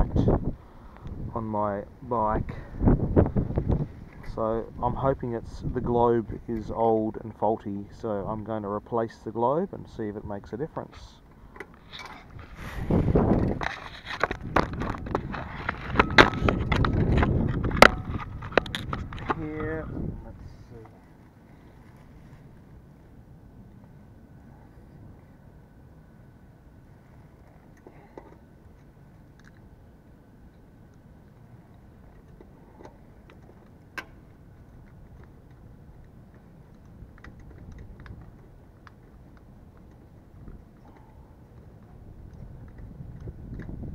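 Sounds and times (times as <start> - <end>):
low background rumble: 0.0 - 43.9
headlight parts clicking: 13.3 - 19.4
handling clicks and knocks: 31.7 - 43.9.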